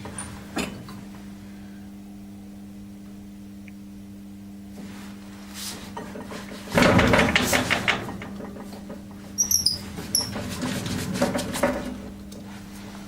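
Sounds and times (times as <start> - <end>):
steady low hum: 0.0 - 13.0
knocks and scrapes of parts: 5.8 - 12.5.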